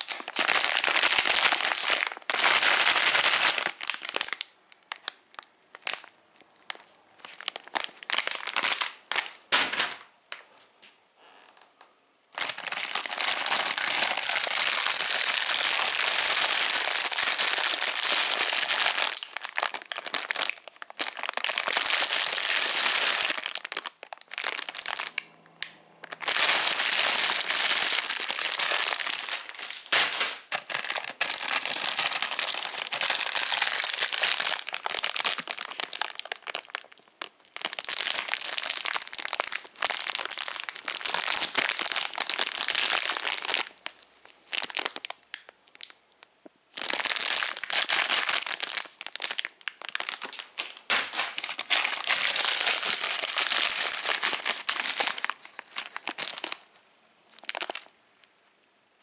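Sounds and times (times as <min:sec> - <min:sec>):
plastic wrappers crinkling: 0:00.0 - 0:10.4, 0:12.3 - 0:58.3.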